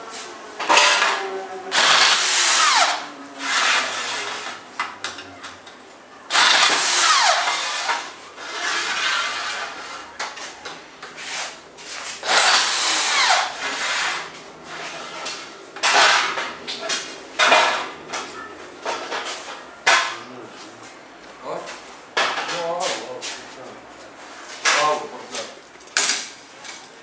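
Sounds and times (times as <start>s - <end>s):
power tool whining: 1.7s - 4.6s, 6.3s - 10.1s, 12.2s - 16.5s.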